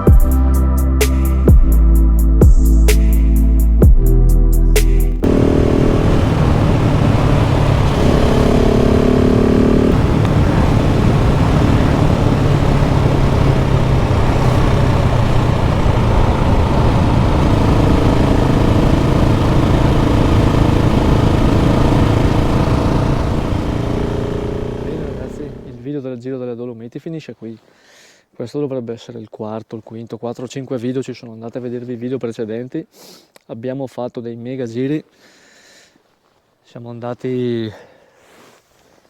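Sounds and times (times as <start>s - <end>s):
motorcycle engine running: 5.2s - 25.8s
rush of noise: 5.2s - 25.8s.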